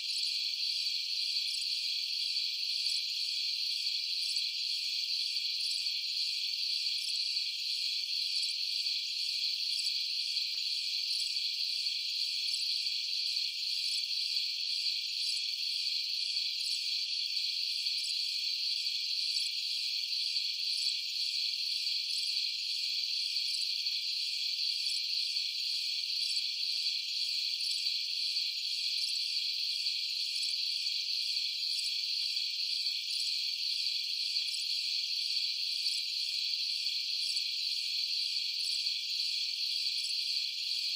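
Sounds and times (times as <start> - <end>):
crickets chirring: 0.1 - 40.9.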